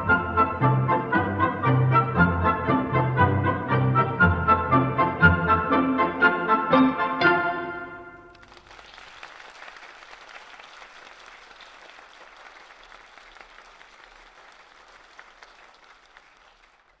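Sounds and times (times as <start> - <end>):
music: 0.0 - 8.4
audience applauding: 8.3 - 17.0.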